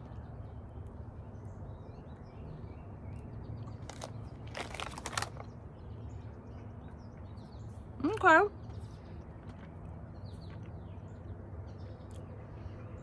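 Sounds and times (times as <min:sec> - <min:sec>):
low outdoor rumble: 0:00.0 - 0:13.0
chewing crunchy food: 0:03.6 - 0:05.6.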